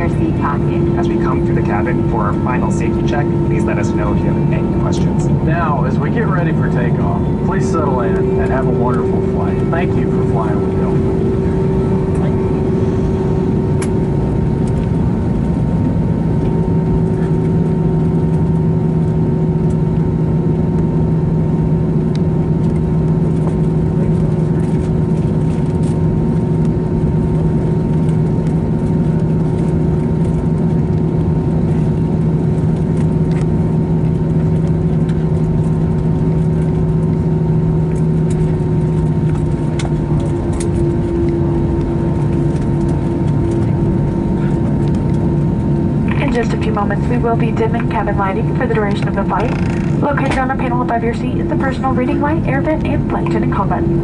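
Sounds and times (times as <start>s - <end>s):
steady tones: 0.0s - 18.4s, 38.2s - 54.0s
aircraft cabin engine hum: 0.0s - 54.0s.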